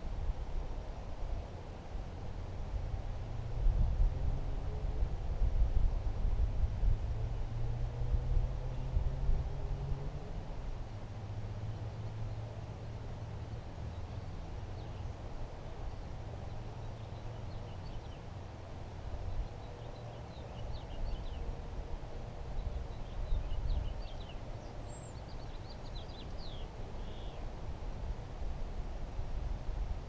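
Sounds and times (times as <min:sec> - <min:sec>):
small birds chirping: 0:11.7 - 0:18.5, 0:19.1 - 0:21.5, 0:22.5 - 0:27.5.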